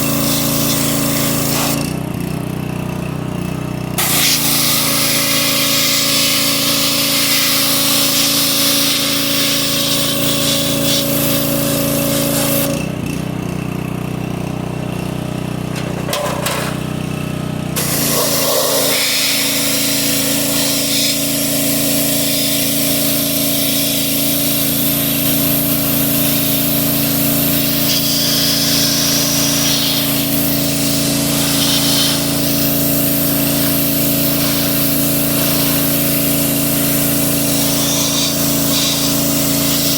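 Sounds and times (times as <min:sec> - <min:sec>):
pressure washer motor running: 0:00.0 - 0:39.9
spray jet hissing: 0:17.8 - 0:39.9.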